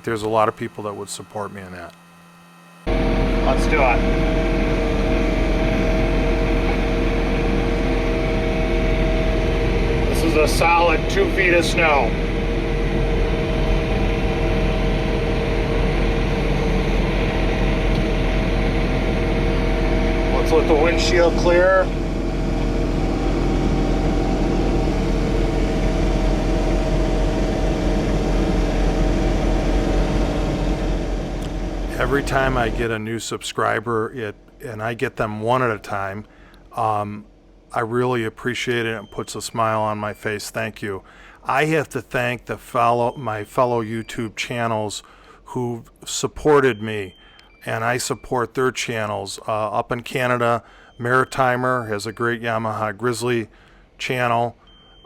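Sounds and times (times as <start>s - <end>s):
tractor diesel engine running: 2.8s - 33.0s.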